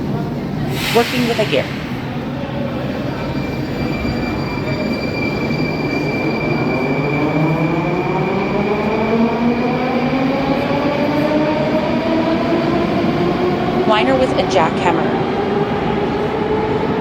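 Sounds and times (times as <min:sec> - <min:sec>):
steady high squeal: 0:01.0 - 0:09.3.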